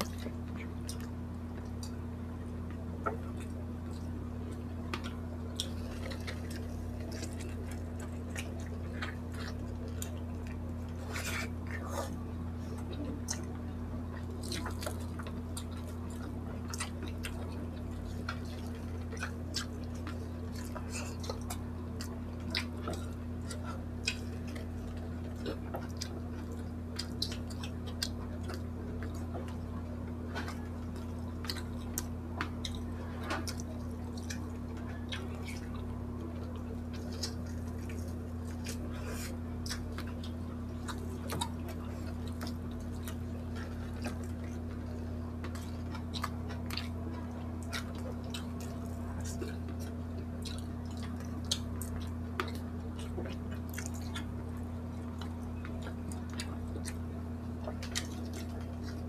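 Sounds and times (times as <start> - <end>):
steady low hum: 0.0 - 59.0
wet chewing mouth clicks: 37.0 - 59.0.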